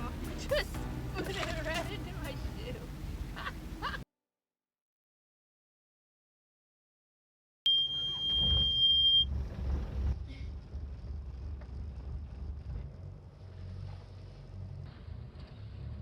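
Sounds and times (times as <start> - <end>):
boat engine low rumble: 0.0 - 4.0, 8.1 - 16.0
high electronic beep: 7.7 - 9.3.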